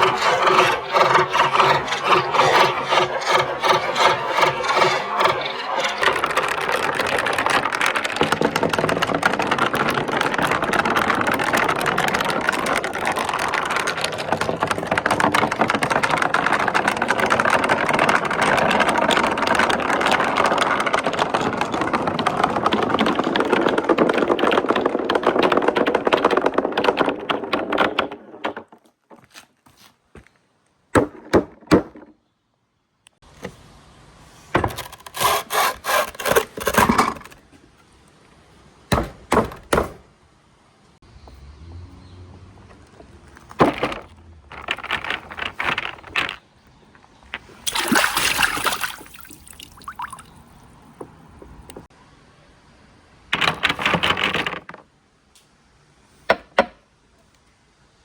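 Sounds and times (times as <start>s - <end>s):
marbles rattling down a track: 0.0s - 28.2s.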